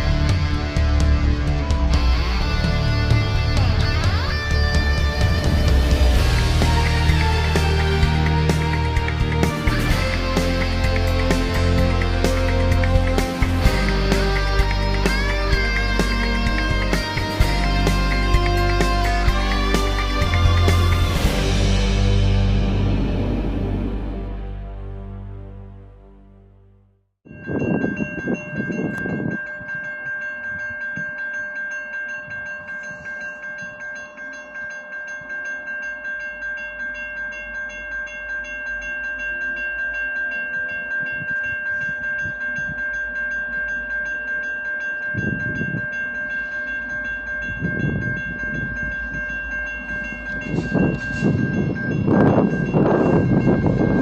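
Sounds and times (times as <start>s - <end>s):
train rumble on tracks: 0.0s - 25.4s, 47.1s - 54.0s
high-pitched ringing tone: 27.3s - 54.0s.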